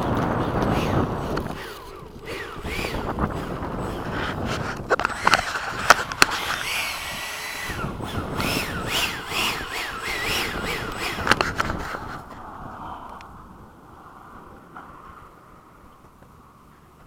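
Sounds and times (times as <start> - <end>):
sharp clicks: 0.0 - 12.4
electric ducted fan whining: 0.0 - 17.0.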